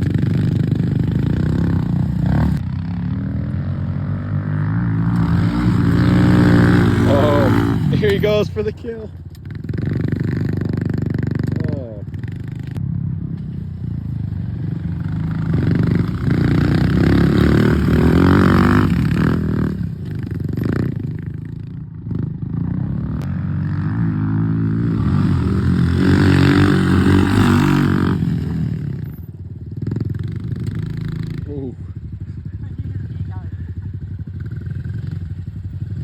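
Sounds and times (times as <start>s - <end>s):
motorbike engines revving: 0.0s - 36.0s.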